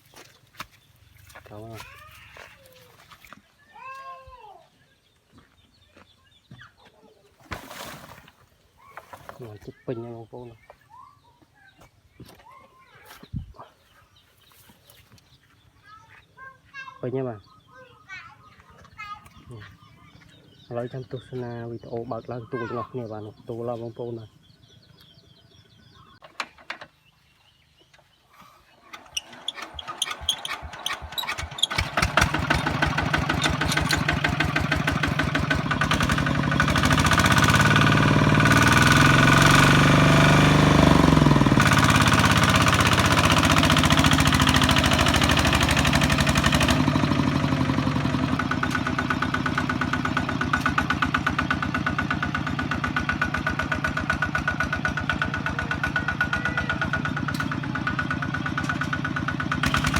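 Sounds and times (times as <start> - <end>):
diesel engine starting and running: 28.8 - 59.9.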